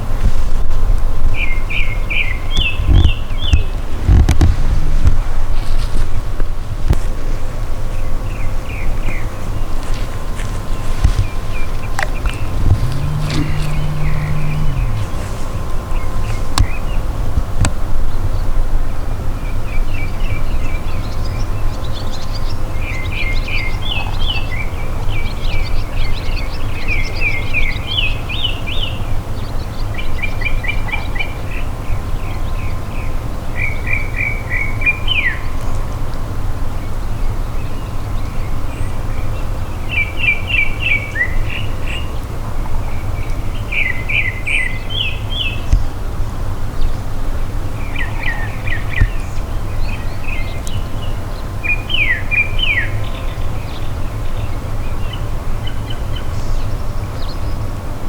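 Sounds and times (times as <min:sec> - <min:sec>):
songbird chirping: 0:10.2 - 0:17.1
low rumble: 0:12.1 - 0:17.3.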